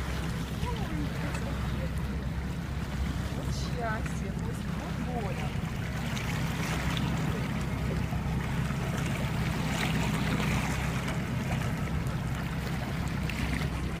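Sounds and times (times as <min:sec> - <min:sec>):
motorboat engine humming: 0:00.0 - 0:14.0
water splashing along hull: 0:00.0 - 0:14.0.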